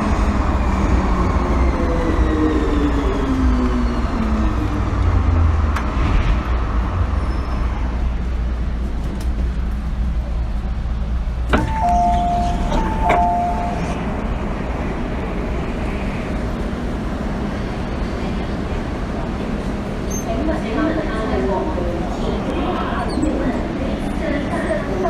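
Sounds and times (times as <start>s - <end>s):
train low rumble: 0.0s - 25.0s
two-note electronic chime: 11.7s - 14.0s.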